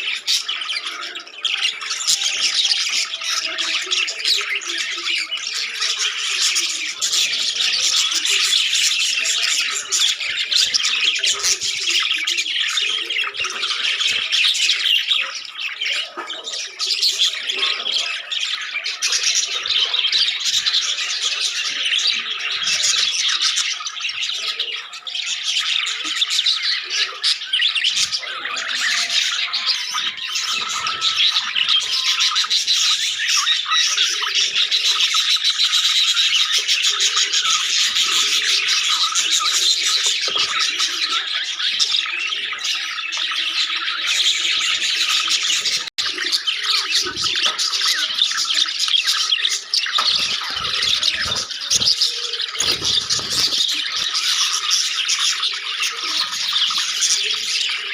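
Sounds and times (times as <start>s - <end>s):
budgies chattering and chirping: 0.0s - 57.9s.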